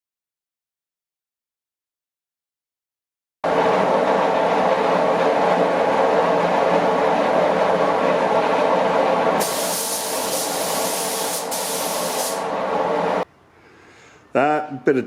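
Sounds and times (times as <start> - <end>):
steady machine drone: 3.5 - 13.3
paint spray gun hissing: 9.4 - 12.4.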